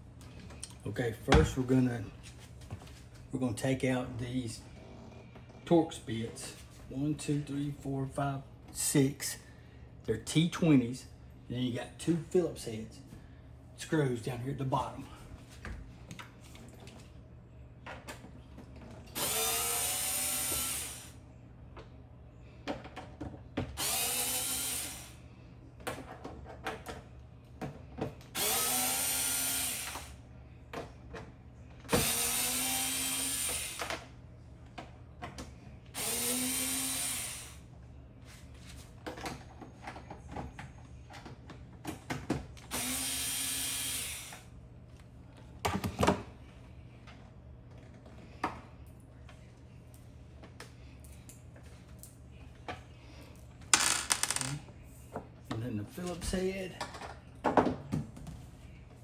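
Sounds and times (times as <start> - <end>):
power drill motor whine: 19.2 - 21.2, 23.8 - 25.2, 28.4 - 30.2, 31.9 - 34.1, 36.0 - 37.6, 42.7 - 44.5.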